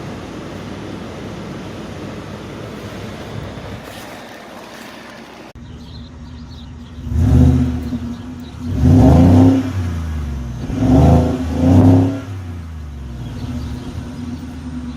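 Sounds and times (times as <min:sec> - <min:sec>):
engine revving from idle: 0:06.3 - 0:14.9.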